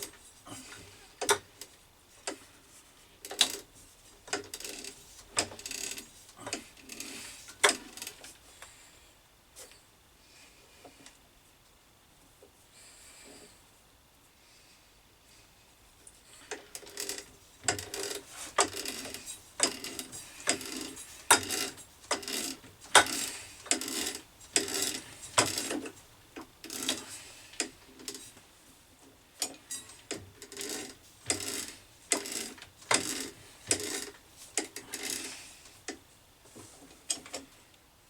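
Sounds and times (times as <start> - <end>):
threading die scraping brass: 16.8 - 26.0, 29.6 - 35.5.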